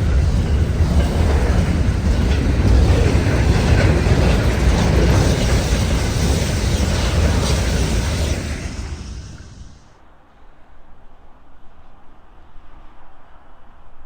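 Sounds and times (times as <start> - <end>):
train rumbling past: 0.0 - 10.0.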